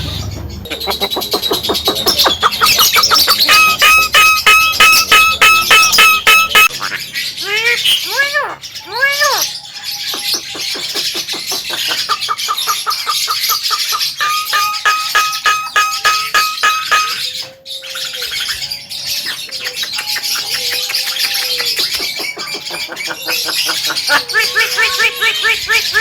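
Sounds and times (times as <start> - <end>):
myna clicking and whistling: 0.7 - 6.8, 10.1 - 17.6, 19.2 - 26.0.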